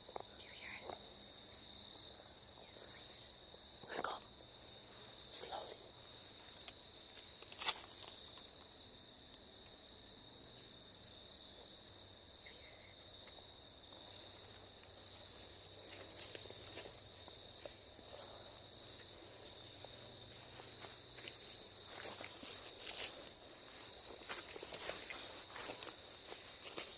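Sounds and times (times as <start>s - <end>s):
crickets trilling: 0.0s - 26.9s
footsteps on leaves: 14.6s - 26.9s.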